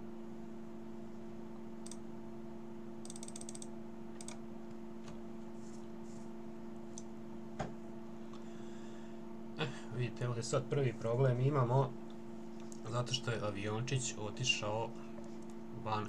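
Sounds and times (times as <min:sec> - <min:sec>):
steady low hum: 0:00.0 - 0:16.0
keyboard and mouse clicks: 0:03.0 - 0:04.4.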